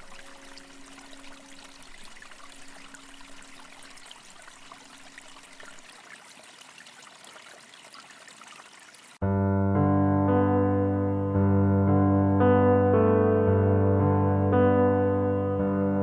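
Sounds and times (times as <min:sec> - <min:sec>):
trickling stream: 0:00.0 - 0:09.2.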